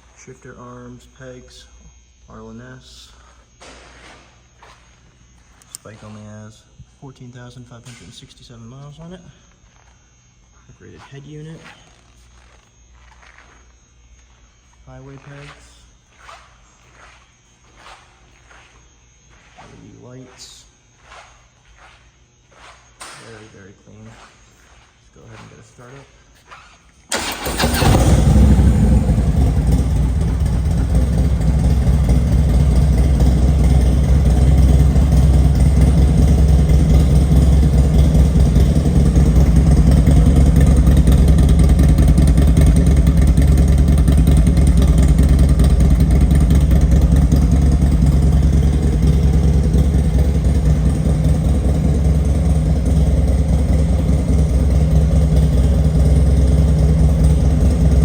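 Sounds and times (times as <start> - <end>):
motorcycle engine idling: 27.1 - 58.0.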